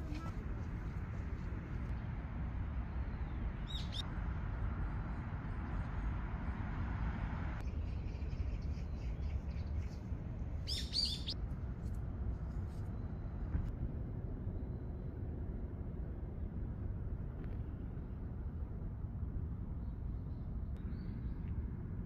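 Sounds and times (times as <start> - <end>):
low outdoor rumble: 0.0 - 22.0
small birds chirping: 3.0 - 4.1, 7.7 - 11.4.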